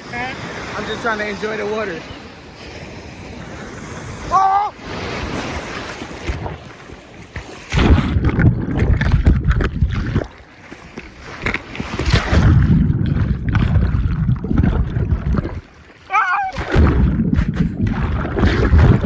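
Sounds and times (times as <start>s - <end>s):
sea surf: 0.0s - 8.2s, 15.6s - 19.0s
sloshing water: 0.0s - 19.0s
wind buffeting microphone: 0.0s - 19.0s.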